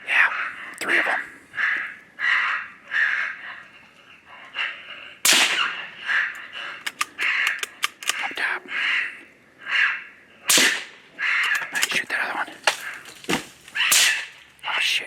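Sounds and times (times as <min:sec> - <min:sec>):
raccoon call squalls: 0:00.1 - 0:15.0
rifle shot: 0:05.2 - 0:05.8, 0:10.5 - 0:11.0, 0:13.9 - 0:14.3
quick sharp clicks: 0:06.8 - 0:08.3.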